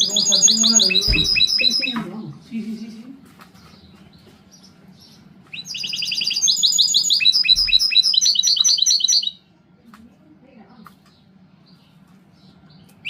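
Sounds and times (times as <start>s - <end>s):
songbird singing trills and whistles: 0.0s - 2.2s, 3.6s - 9.4s.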